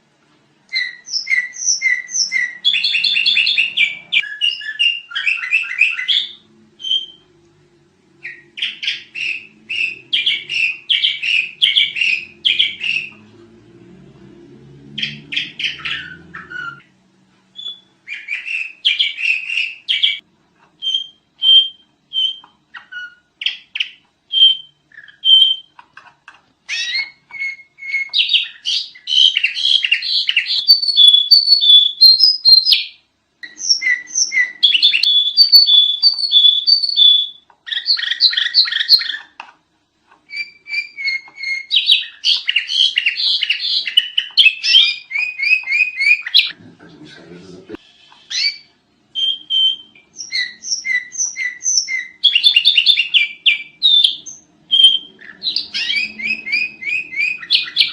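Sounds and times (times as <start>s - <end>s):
bird chirping and whistling: 0.7s - 7.4s, 8.2s - 13.3s, 14.9s - 16.9s, 17.5s - 20.2s, 20.8s - 25.8s, 26.7s - 39.4s, 40.3s - 46.6s, 48.3s - 57.9s.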